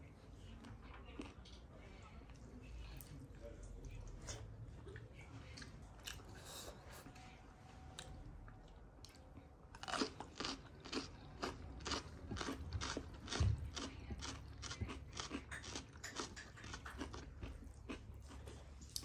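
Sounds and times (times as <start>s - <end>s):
crunchy chewing of cucumber: 8.6s - 19.0s.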